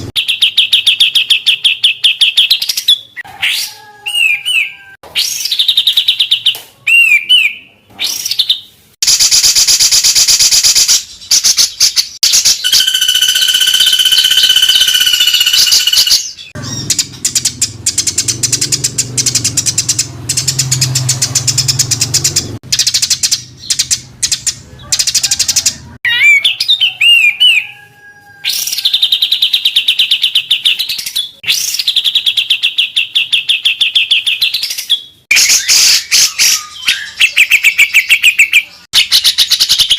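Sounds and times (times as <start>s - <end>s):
songbirds trilling and chattering: 13.8s - 39.9s.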